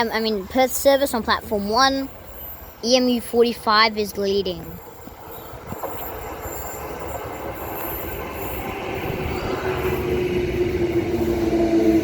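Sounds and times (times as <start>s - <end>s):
electric train running noise: 4.2s - 12.0s
train motor whine: 5.5s - 12.0s.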